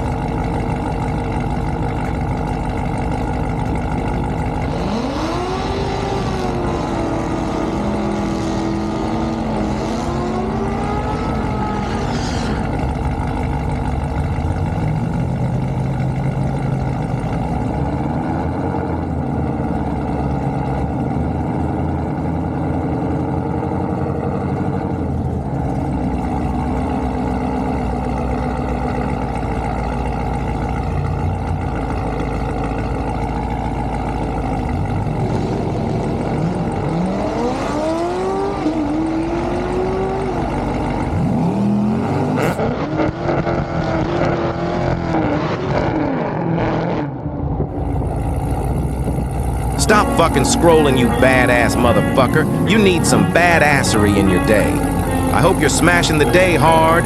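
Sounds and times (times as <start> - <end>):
drag car engines revving: 0.0 - 57.0.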